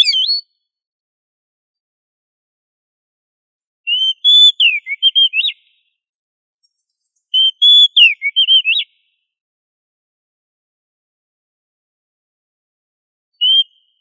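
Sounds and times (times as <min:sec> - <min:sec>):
bird singing whistled phrases: 0:00.0 - 0:00.6, 0:03.9 - 0:05.9, 0:07.3 - 0:09.0, 0:13.4 - 0:14.0.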